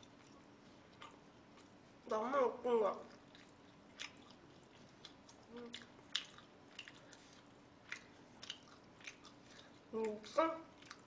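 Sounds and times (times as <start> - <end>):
wet chewing: 0.0 - 2.0, 2.9 - 11.0
mouth clicks and lip smacks: 3.1 - 10.2.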